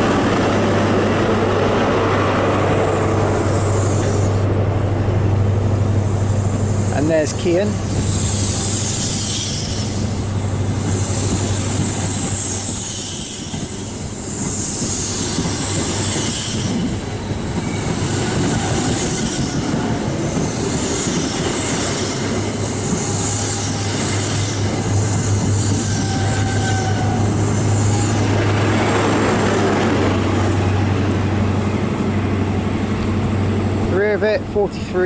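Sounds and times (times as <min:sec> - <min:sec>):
train wheels rolling and squealing: 0:00.0 - 0:04.6, 0:06.2 - 0:33.2
low diesel engine hum: 0:00.0 - 0:09.0.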